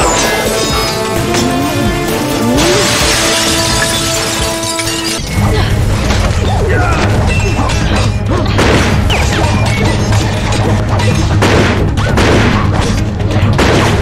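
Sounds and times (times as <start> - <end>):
action music with low bass line: 1.0 - 4.7.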